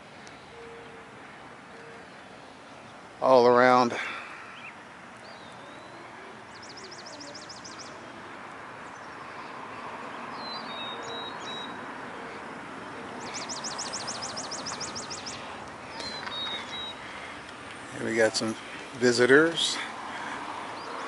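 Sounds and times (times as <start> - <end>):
birds chirping: 0.0 - 21.0
steady background hiss: 0.0 - 21.0
bird trilling: 13.2 - 17.3.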